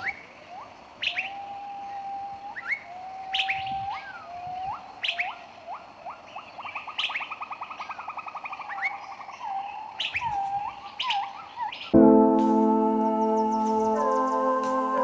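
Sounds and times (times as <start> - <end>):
birds whistling and trilling: 0.0 - 12.0
high bird chirps: 7.8 - 15.0
music: 12.0 - 15.0.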